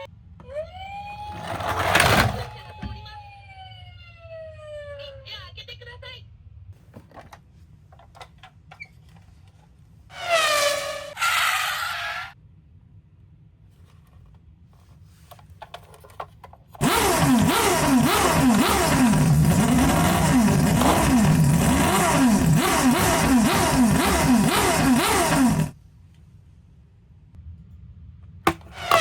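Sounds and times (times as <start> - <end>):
toy siren wailing: 0.4 - 5.2.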